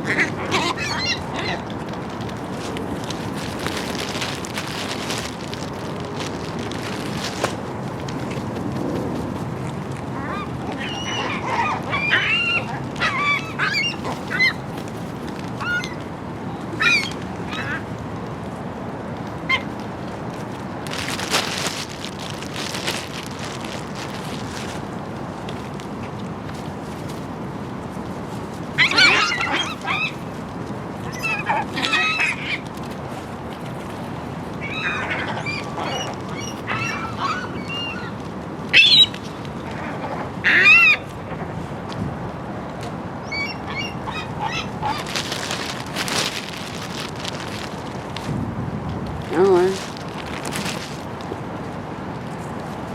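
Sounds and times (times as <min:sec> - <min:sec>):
seagull call: 0:00.0 - 0:01.6, 0:10.2 - 0:14.6, 0:28.8 - 0:30.2, 0:34.6 - 0:38.2, 0:43.2 - 0:45.3
outdoor background noise: 0:00.0 - 0:52.9.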